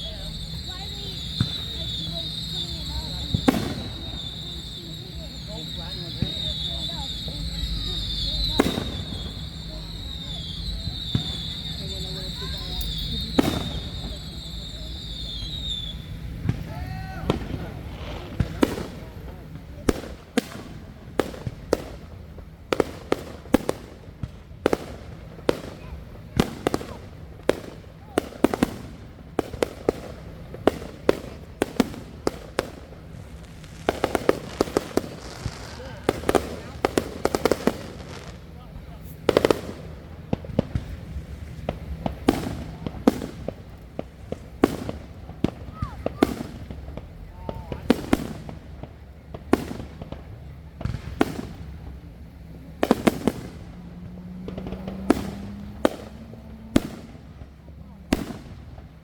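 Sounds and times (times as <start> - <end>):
fireworks bangs: 0.0 - 59.0.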